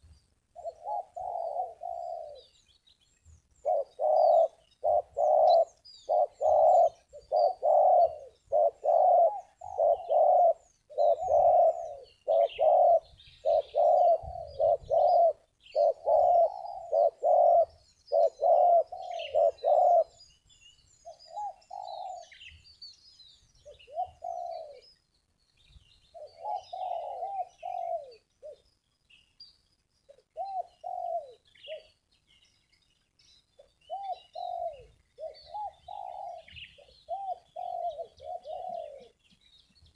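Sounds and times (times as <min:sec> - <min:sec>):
small birds chirping: 0:00.0 - 0:39.9
doves cooing: 0:00.6 - 0:02.6, 0:03.6 - 0:20.2, 0:21.2 - 0:22.4, 0:23.6 - 0:24.8, 0:26.2 - 0:28.6, 0:30.2 - 0:32.0, 0:33.9 - 0:39.2.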